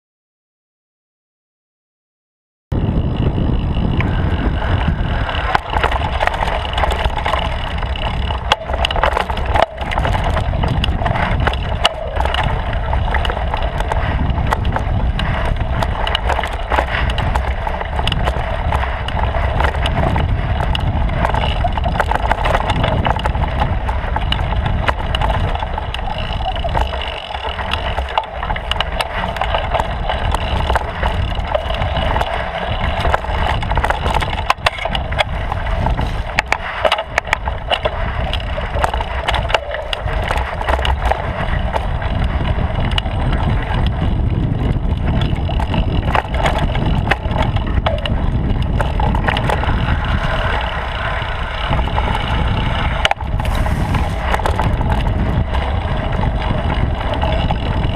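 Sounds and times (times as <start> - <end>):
bicycle rattling over bumps: 2.7 - 57.9
bicycle tyres rumbling on trail: 2.7 - 57.9.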